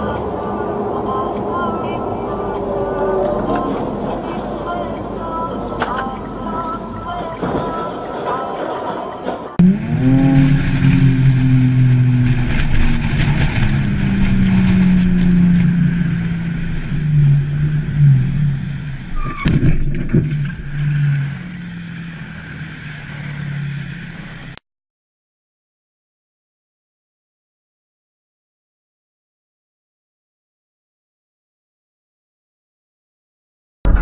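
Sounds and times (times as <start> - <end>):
car engine running: 0.0 - 24.6.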